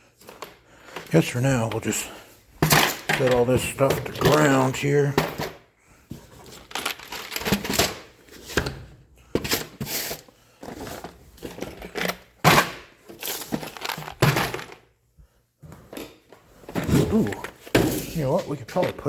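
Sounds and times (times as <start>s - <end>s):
items knocking and thunking: 0.0s - 15.0s, 15.6s - 19.0s.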